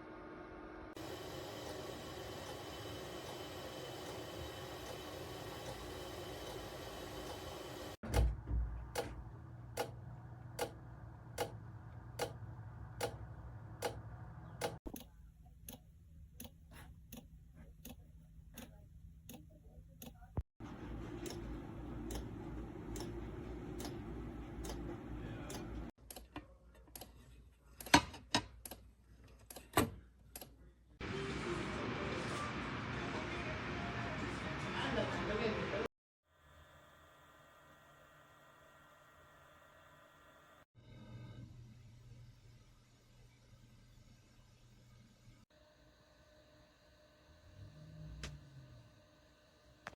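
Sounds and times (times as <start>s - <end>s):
loud irregular clicks: 9.8s - 10.0s.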